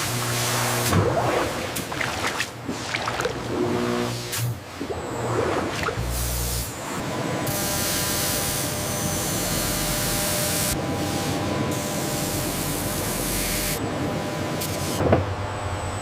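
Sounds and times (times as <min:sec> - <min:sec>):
faint machine whine: 0:03.5 - 0:16.0.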